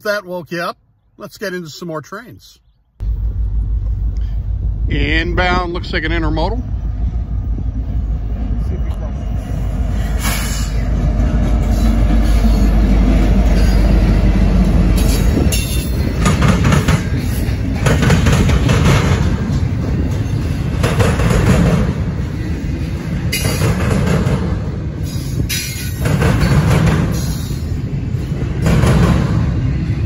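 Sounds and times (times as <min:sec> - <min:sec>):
diesel locomotive engine rumble: 0:03.0 - 0:30.0.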